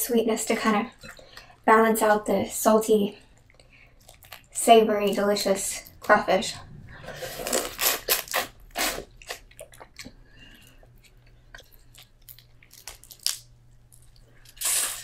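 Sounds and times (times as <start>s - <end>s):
chewing and biting seafood: 3.3s - 4.6s, 7.4s - 15.0s.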